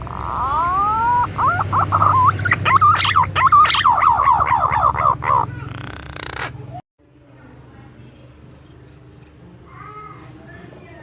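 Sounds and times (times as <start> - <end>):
pigeon whistling call: 0.0 - 5.5.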